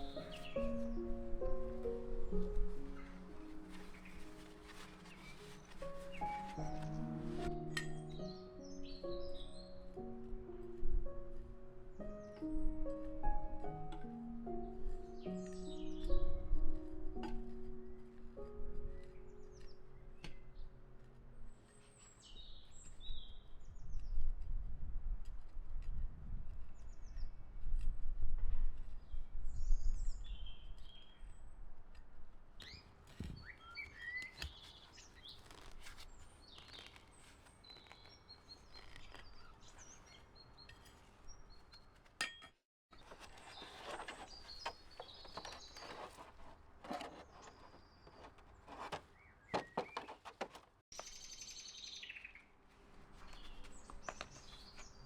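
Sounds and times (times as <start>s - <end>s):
small songbirds chirping: 0.0s - 10.7s, 11.9s - 24.3s, 29.0s - 31.6s, 32.6s - 42.0s, 43.0s - 55.0s.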